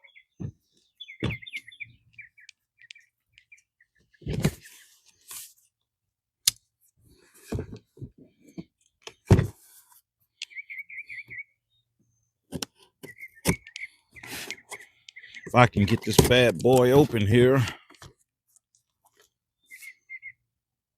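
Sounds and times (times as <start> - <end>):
bird chirping: 0.0 - 5.0, 10.3 - 12.4, 13.0 - 17.6, 19.6 - 20.5.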